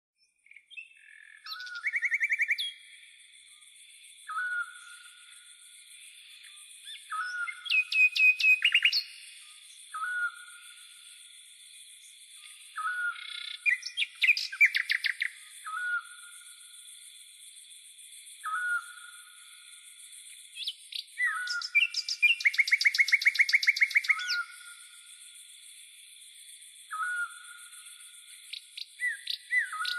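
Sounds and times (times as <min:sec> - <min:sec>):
bird call: 0:00.5 - 0:02.8, 0:06.9 - 0:09.3, 0:12.6 - 0:16.3, 0:18.4 - 0:19.2, 0:20.6 - 0:24.7, 0:26.9 - 0:27.8, 0:28.5 - 0:29.9.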